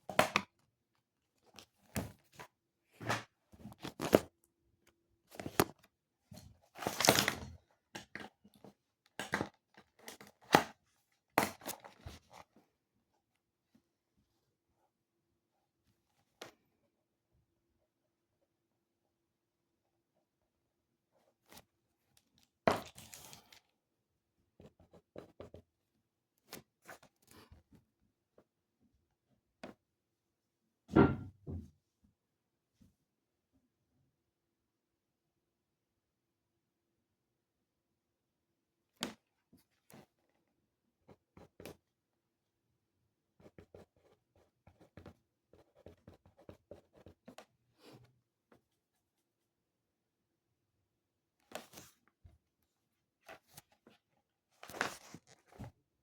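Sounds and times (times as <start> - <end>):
pen scratching on paper: 43.4 - 47.4.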